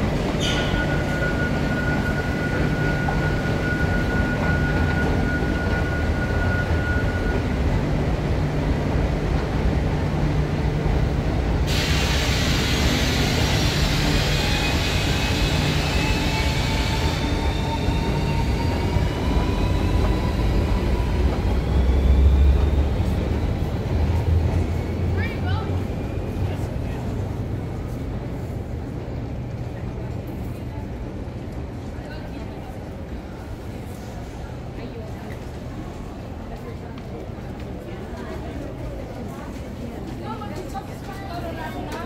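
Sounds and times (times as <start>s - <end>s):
train rumbling: 0.0s - 42.0s
rush of hiss: 11.7s - 15.9s.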